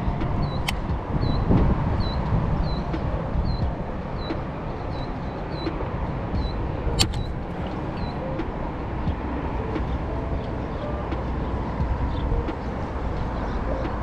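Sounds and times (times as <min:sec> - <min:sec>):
wind rumbling on microphone: 0:00.0 - 0:14.0
sharp click: 0:07.0 - 0:07.8.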